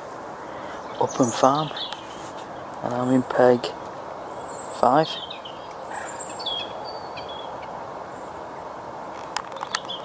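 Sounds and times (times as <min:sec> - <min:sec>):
steady background hiss: 0:00.0 - 0:10.0
small birds chirping: 0:00.4 - 0:10.0
sharp clicks: 0:09.2 - 0:10.0.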